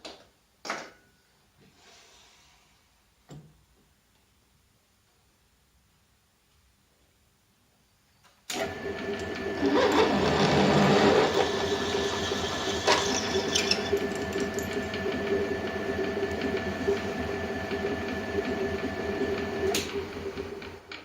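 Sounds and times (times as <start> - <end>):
belt sander humming: 8.6 - 20.9.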